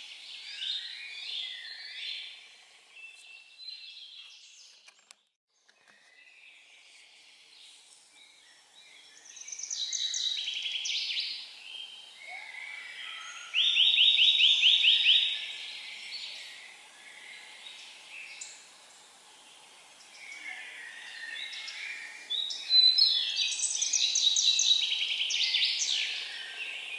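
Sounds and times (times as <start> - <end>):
faint outdoor hiss: 0.0 - 26.9
songbirds singing: 0.0 - 26.9.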